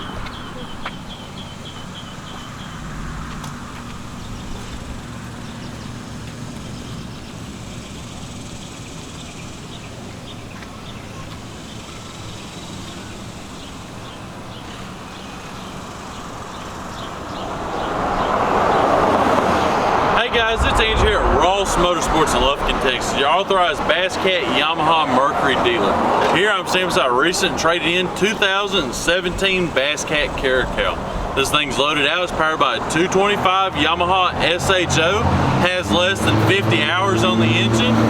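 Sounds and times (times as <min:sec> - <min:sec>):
bird chirps: 0:00.0 - 0:02.9
vehicle engines humming: 0:00.0 - 0:38.0
vehicle passing: 0:15.7 - 0:28.1.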